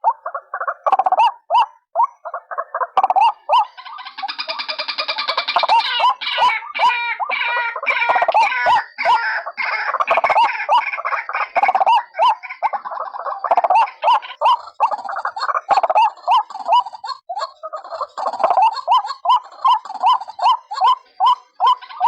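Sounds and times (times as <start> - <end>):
waterhens croaking chorus: 0.0 - 22.0.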